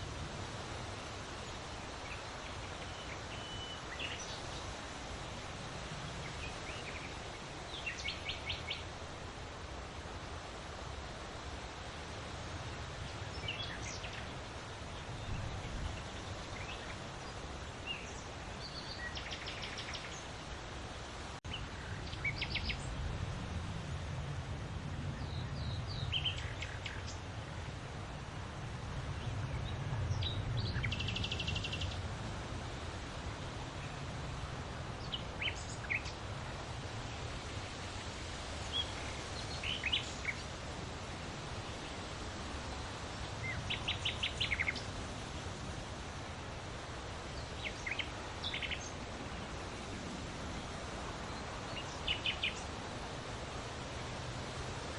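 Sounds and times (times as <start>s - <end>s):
wind blowing with low rumble: 0.0s - 54.9s
small birds chirping: 1.4s - 5.0s, 6.2s - 9.0s, 12.8s - 23.1s, 25.0s - 27.6s, 29.1s - 32.1s, 34.9s - 40.7s, 41.5s - 45.8s, 46.6s - 53.2s
bird chirps: 2.8s - 4.3s.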